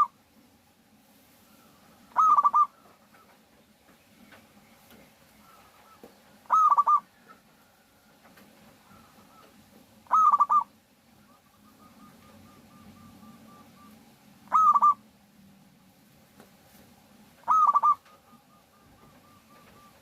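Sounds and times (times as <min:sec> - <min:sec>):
faint dove cooing softly: 0:01.3 - 0:03.4, 0:04.9 - 0:15.1, 0:17.4 - 0:20.0
dove cooing in bursts: 0:01.6 - 0:03.4, 0:05.4 - 0:08.1, 0:08.7 - 0:15.1, 0:17.4 - 0:20.0.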